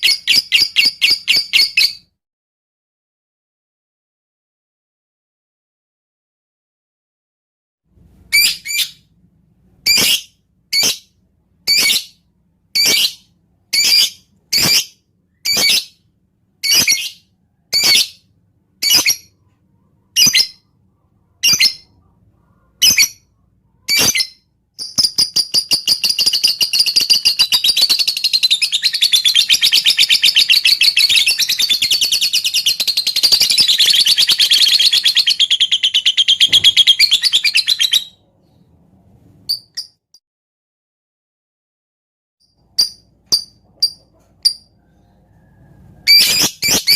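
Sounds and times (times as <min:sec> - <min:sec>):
lovebird chattering: 0:23.9 - 0:38.2.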